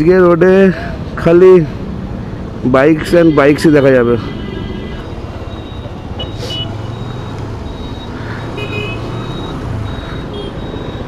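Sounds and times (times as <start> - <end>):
wind and road noise: 0.0 - 11.0
short high-pitched beeps: 5.0 - 11.0.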